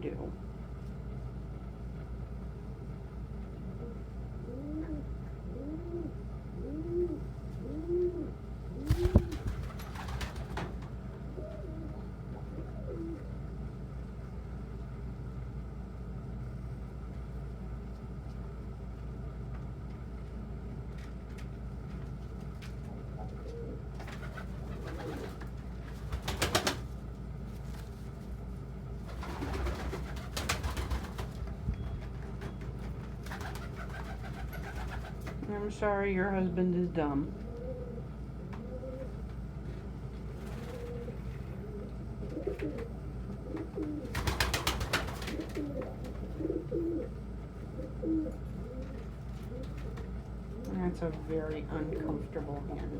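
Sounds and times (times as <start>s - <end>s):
steady low hum: 0.0s - 52.9s
pigeons cooing: 3.7s - 10.6s, 11.2s - 13.6s, 23.0s - 26.9s, 33.2s - 35.3s, 37.3s - 39.2s, 40.3s - 50.7s.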